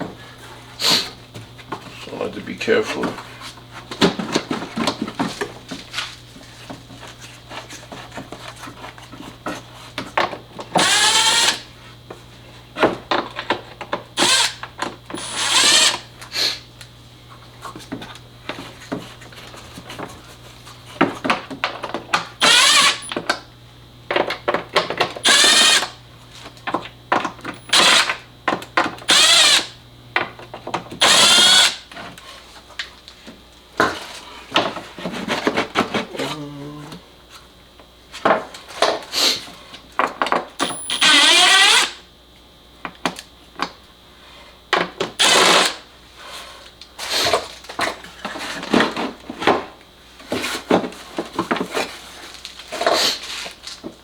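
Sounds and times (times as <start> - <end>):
cordless electric driver whirring: 10.7 - 11.7, 14.2 - 16.1, 22.4 - 23.3, 25.2 - 26.0, 27.5 - 28.4, 29.0 - 29.8, 31.0 - 31.9, 40.6 - 42.0, 45.2 - 45.8.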